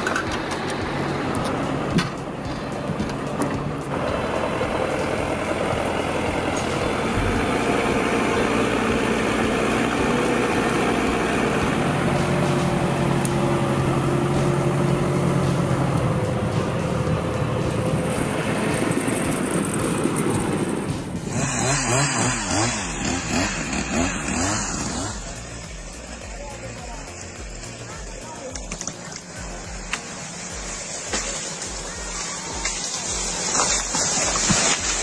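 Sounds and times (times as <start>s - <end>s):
heavy vehicle engine running: 0.0s - 35.0s.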